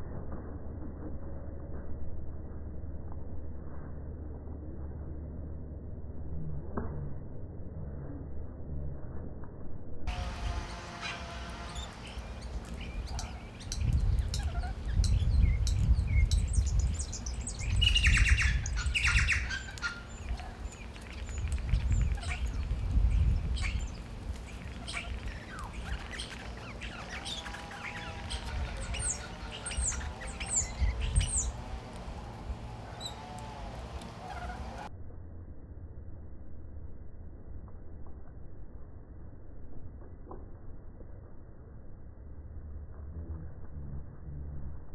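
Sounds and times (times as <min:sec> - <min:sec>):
low rumble: 0:00.0 - 0:44.9
warbling bird calls with whistles: 0:10.1 - 0:31.9, 0:32.9 - 0:34.9
birds chirping: 0:10.1 - 0:34.9
birds squawking: 0:10.1 - 0:34.9.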